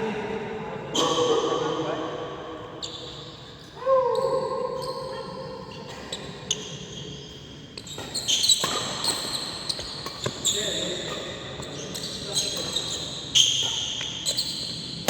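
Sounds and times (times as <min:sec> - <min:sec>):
shoe squeak on court floor: 0:01.0 - 0:01.3, 0:05.8 - 0:15.0.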